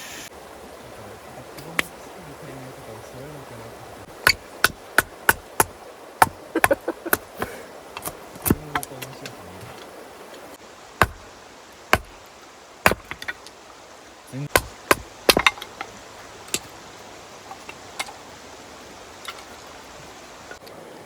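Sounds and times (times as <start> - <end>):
sharp knocks: 4.2 - 9.1, 11.0 - 11.3, 11.9 - 12.2, 12.9 - 13.4, 14.5 - 15.8.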